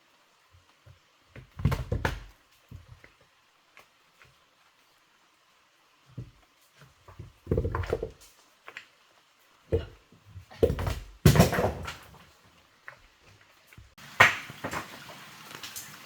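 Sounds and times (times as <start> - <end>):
hard objects thudding and knocking: 1.4 - 3.1, 7.0 - 8.3, 9.7 - 12.3.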